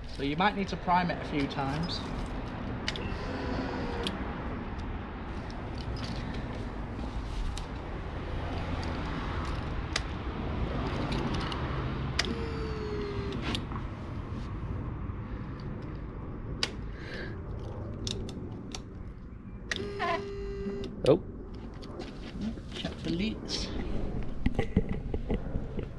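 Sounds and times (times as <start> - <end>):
sharp clicks: 11.2 - 13.7, 19.7 - 21.1.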